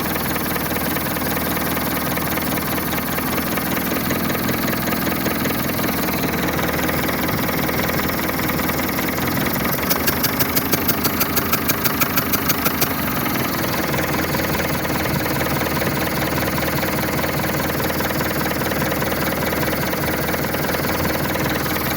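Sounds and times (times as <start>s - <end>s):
diesel engine idling: 0.0s - 21.9s
rapid sharp ticks: 9.0s - 14.8s.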